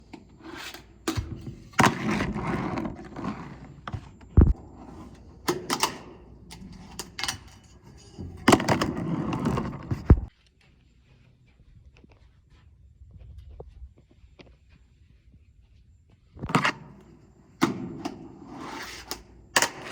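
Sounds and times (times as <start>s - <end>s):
fingerboard wheels rolling: 0.3s - 10.3s.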